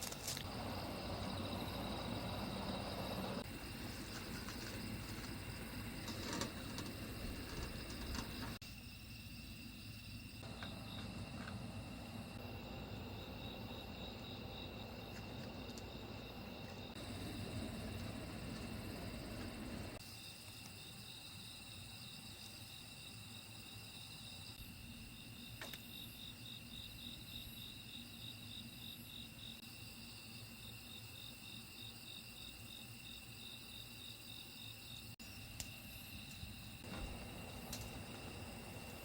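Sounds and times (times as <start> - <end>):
insect pulsed chirp: 0.1 - 39.0.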